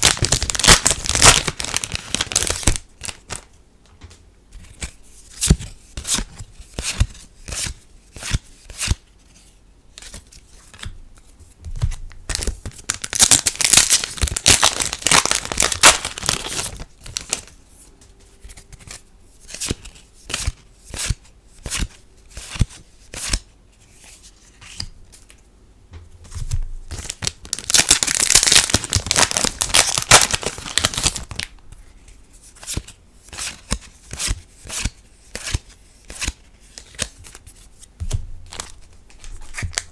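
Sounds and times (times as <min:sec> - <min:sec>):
foil card packs tearing and crinkling: 0:00.0 - 0:03.4, 0:12.3 - 0:17.5, 0:26.9 - 0:31.5.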